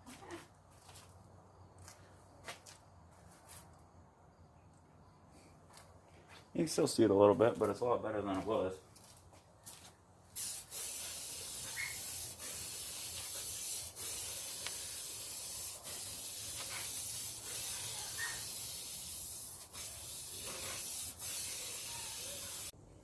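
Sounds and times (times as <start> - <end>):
aerosol spray can hissing: 10.4 - 22.8.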